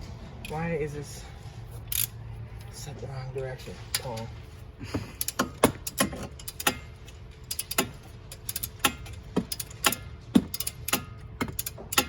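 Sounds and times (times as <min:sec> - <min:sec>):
ratchet wrench clicking: 0:01.9 - 0:02.2, 0:05.2 - 0:12.0.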